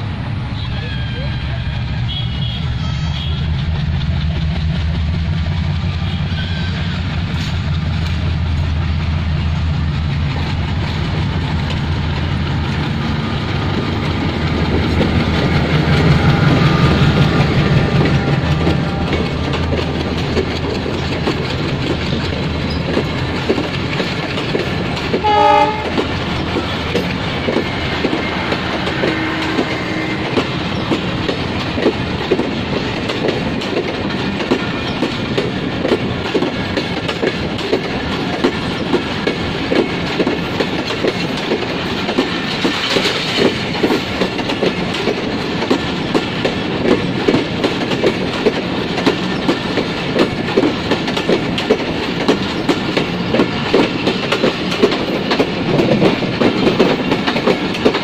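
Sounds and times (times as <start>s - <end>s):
train horn blast: 0.6s - 3.7s, 6.0s - 7.2s, 15.8s - 19.9s, 25.2s - 26.0s, 28.2s - 30.5s
train wheels clattering on rails: 1.2s - 58.0s.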